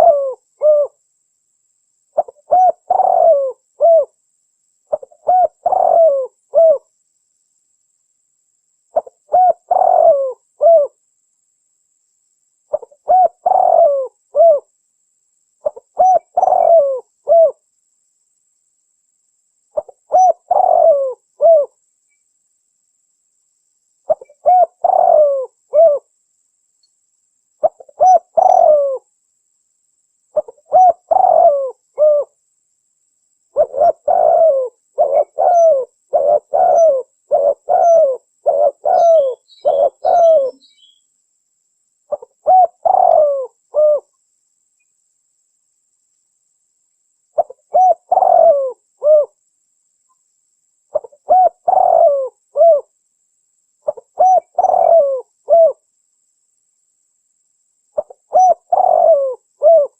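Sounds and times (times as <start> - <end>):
dove cooing: 0.0 - 1.0, 2.1 - 4.2, 4.9 - 6.9, 8.9 - 11.0, 12.7 - 14.7, 15.6 - 17.6, 19.8 - 21.8, 24.1 - 26.1, 27.6 - 29.1, 30.4 - 32.4, 33.5 - 41.0, 42.1 - 44.1, 47.4 - 49.4, 50.9 - 52.9, 53.8 - 55.8, 58.0 - 59.9.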